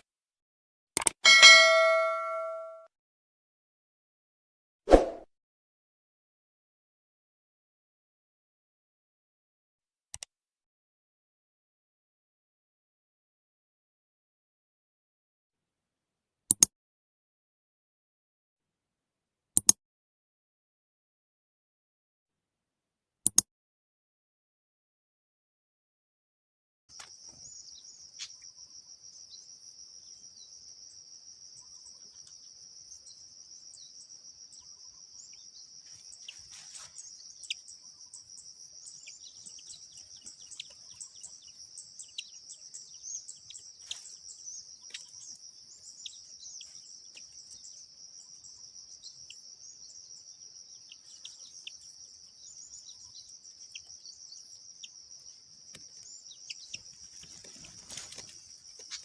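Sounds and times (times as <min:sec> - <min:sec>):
sharp bird chirps: 0:01.3 - 0:02.8, 0:26.9 - 0:59.0.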